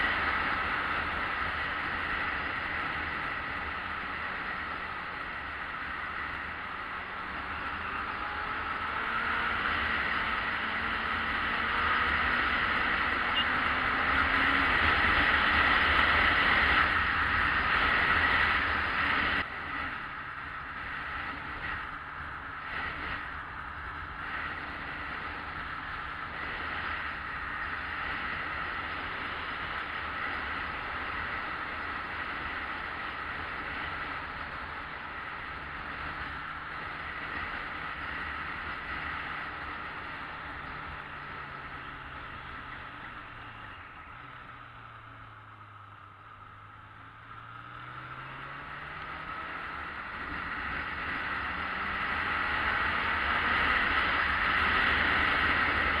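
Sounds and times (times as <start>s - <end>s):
motorcycle engine running: 0.0s - 47.5s.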